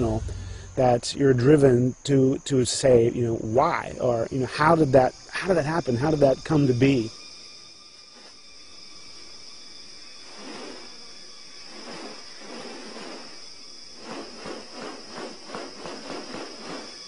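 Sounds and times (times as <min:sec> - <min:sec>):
breathy swishing noises: 0:00.0 - 0:00.8
high-pitched insect drone: 0:00.0 - 0:17.0.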